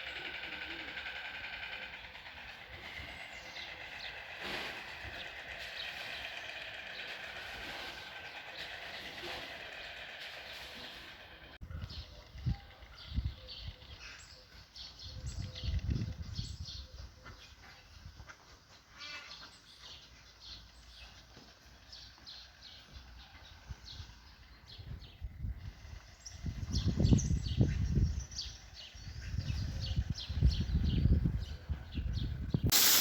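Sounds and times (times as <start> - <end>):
birds chirping: 0.0 - 18.4, 19.2 - 33.0.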